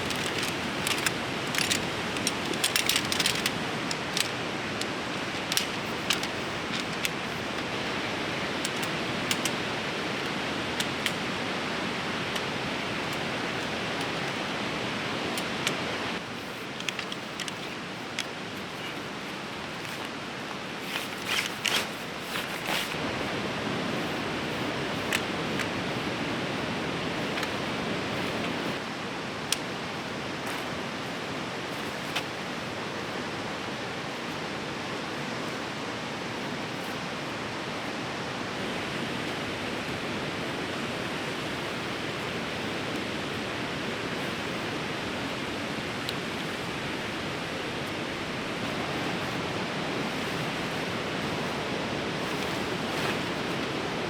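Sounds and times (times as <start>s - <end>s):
tent gear clicks and rustles: 0.0s - 29.8s, 41.6s - 54.0s.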